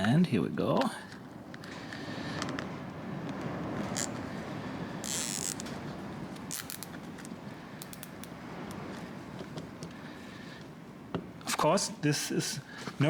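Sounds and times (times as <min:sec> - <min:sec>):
storm wind rushing: 0:01.3 - 0:12.0
small clicks: 0:07.8 - 0:08.4.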